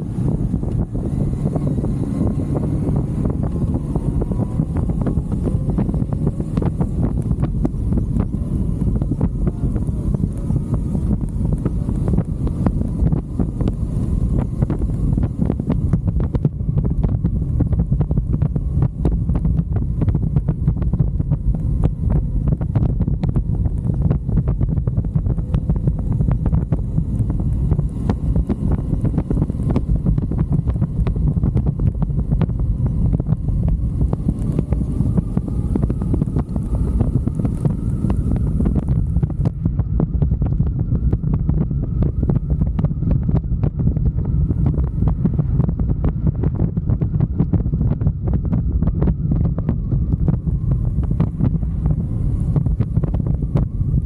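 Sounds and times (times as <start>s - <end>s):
motorcycle engine running: 0.0s - 54.0s
wind buffeting microphone: 0.0s - 54.0s.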